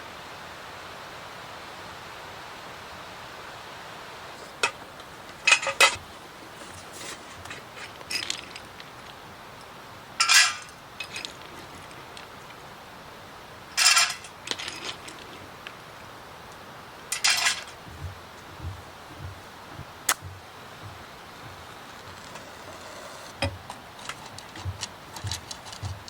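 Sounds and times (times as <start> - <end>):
faint hiss: 0.0 - 25.8
utensils clinking on dishes: 10.2 - 11.4, 13.8 - 15.2, 17.1 - 17.8.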